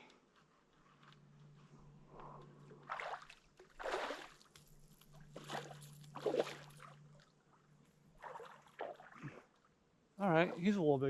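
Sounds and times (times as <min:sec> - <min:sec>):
steady low hum: 0:00.0 - 0:11.0
fish splashing at surface: 0:02.9 - 0:04.5, 0:05.3 - 0:07.0.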